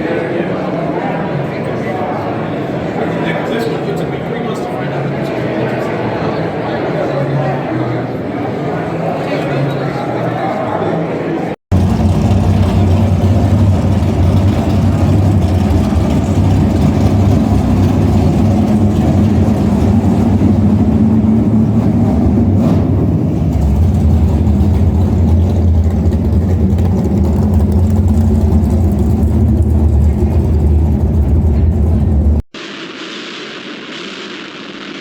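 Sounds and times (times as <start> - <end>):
car engine rumbling: 11.7 - 32.4.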